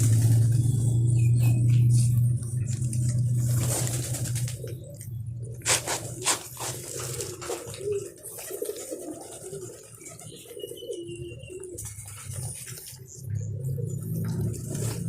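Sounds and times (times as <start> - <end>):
low hum: 0.0 - 6.6
pigeons cooing: 0.0 - 15.0.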